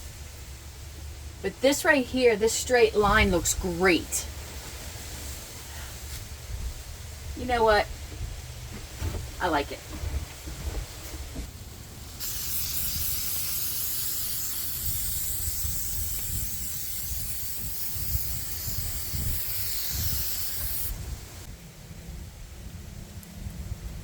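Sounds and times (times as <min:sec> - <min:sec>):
aerosol spray can hissing: 0:12.2 - 0:21.0.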